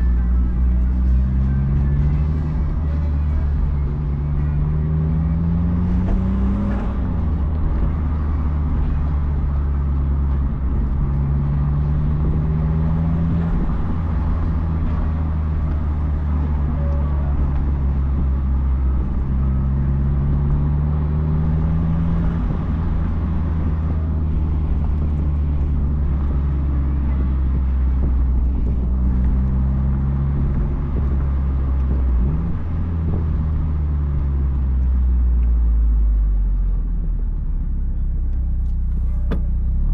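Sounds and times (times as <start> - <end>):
car engine and exhaust running: 0.0 - 39.9
road and wind noise: 0.0 - 39.9.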